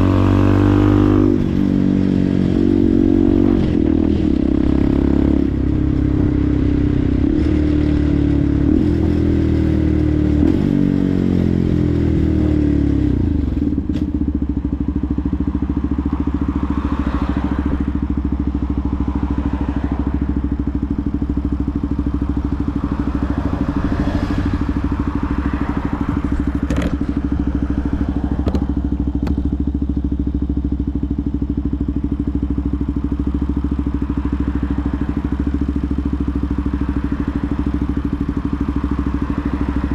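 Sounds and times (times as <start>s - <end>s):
motorcycle engine idling: 12.8s - 39.9s.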